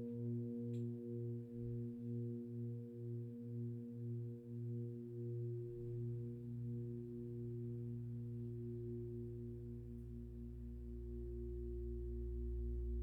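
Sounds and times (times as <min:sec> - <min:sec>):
deep low hum: 0:09.2 - 0:13.0.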